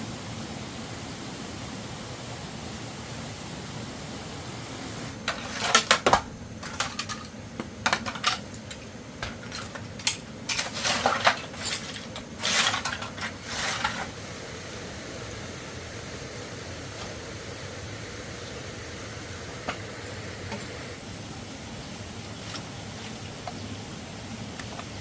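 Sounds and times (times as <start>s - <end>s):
steady hiss: 0.0s - 25.0s
hard objects clattering: 5.2s - 14.2s.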